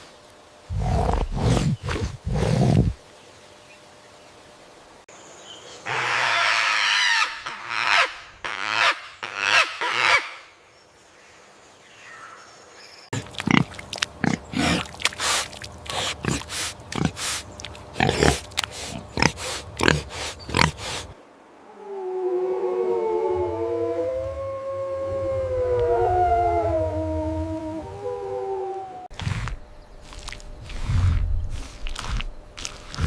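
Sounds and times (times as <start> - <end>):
pigs squealing: 13.2 - 17.4, 18.0 - 21.0
pigs grunting: 13.2 - 21.1.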